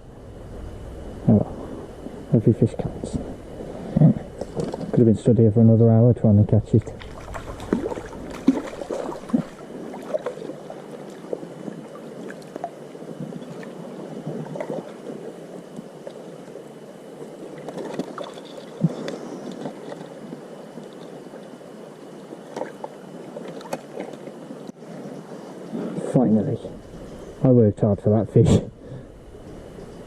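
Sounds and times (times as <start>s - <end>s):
stream water splashing: 6.6s - 16.2s, 17.4s - 20.1s.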